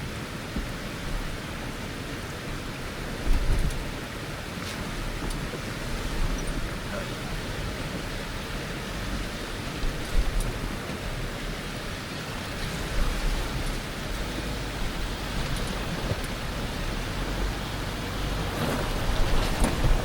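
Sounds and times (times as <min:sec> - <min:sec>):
vehicle low rumble: 0:00.0 - 0:20.0
vehicle bumps: 0:13.0 - 0:20.0
tyres crunching over gravel: 0:13.6 - 0:20.0.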